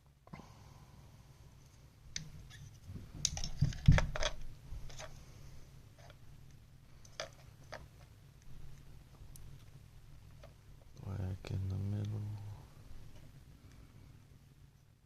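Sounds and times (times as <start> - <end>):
plastic fan and wires handled: 1.6 - 5.2, 6.0 - 6.2, 7.0 - 11.0.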